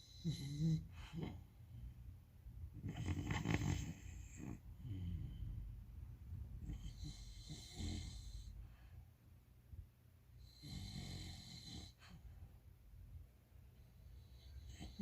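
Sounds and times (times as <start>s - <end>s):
dog snoring: 0.0s - 1.5s, 2.8s - 5.7s, 6.6s - 8.6s, 10.4s - 12.2s, 14.1s - 15.0s.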